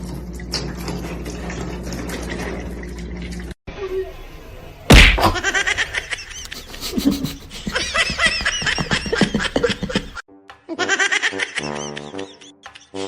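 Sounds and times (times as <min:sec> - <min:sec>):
high-pitched laughing and squealing: 0:05.4 - 0:13.0
music: 0:10.3 - 0:13.0.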